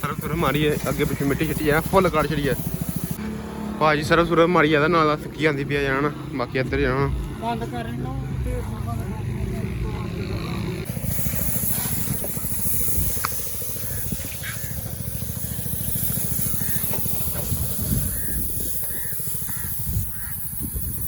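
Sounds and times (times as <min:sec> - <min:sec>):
pressure washer jet hissing: 0:00.0 - 0:03.2, 0:10.8 - 0:21.0.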